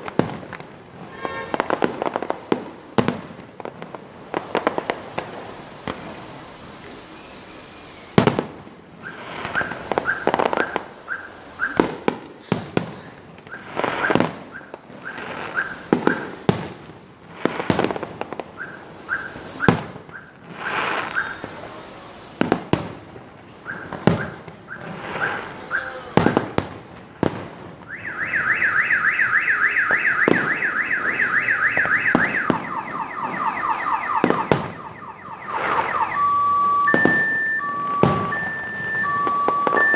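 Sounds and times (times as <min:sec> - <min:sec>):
fireworks bangs: 0:00.0 - 0:39.9
car alarm chirping and warbling: 0:07.1 - 0:08.2, 0:09.0 - 0:12.1, 0:13.5 - 0:16.4, 0:18.5 - 0:21.6, 0:23.6 - 0:26.1, 0:27.9 - 0:39.9.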